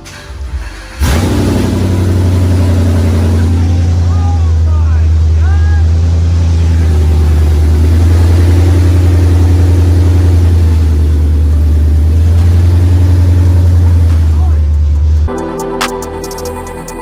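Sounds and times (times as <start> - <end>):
car engine idling loudly: 0.0 - 15.3.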